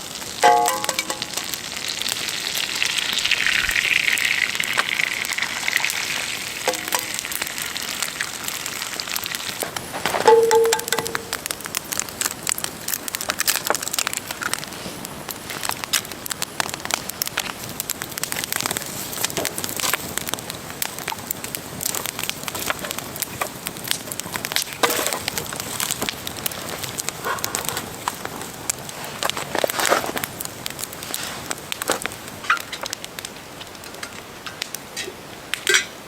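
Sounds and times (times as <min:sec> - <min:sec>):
campfire crackling and popping: 0:00.0 - 0:36.0
rustling: 0:26.6 - 0:30.3.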